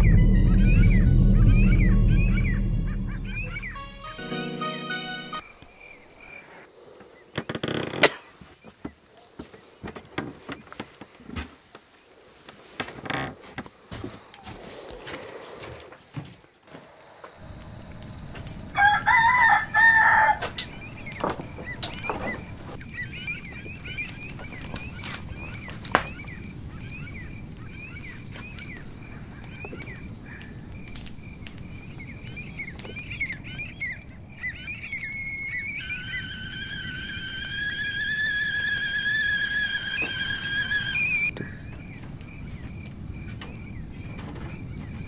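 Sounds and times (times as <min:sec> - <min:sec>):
small birds chirping: 0:00.1 - 0:04.1, 0:16.9 - 0:45.0
wood fire cracking: 0:17.4 - 0:45.0
rooster crowing: 0:18.5 - 0:20.8
kettle whistling: 0:34.6 - 0:41.4.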